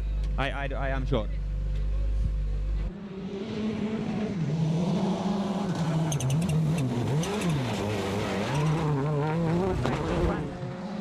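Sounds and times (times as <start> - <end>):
rally car engine revving: 3.1 - 11.0.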